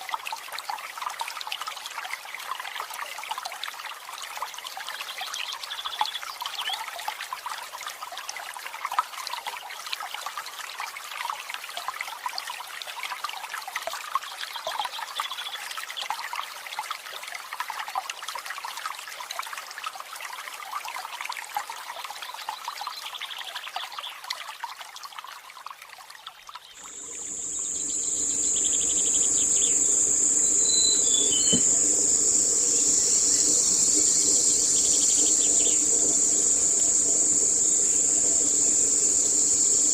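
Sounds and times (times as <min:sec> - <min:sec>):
water trickling and splashing: 0:00.0 - 0:39.9
bird chirps: 0:26.8 - 0:39.9
high-pitched insect drone: 0:26.8 - 0:39.9.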